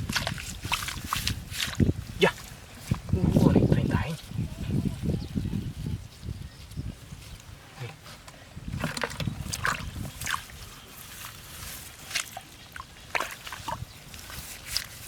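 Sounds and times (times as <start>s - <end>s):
water sloshing and splashing: 0.0s - 2.0s, 8.7s - 15.0s.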